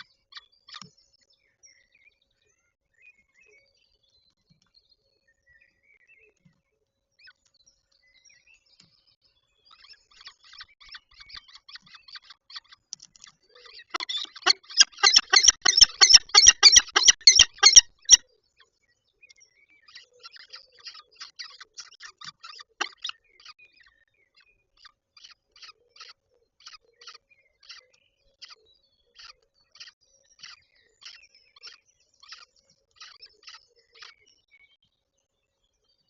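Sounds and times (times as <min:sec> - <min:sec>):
falcon harsh calls: 0:14.0 - 0:18.2.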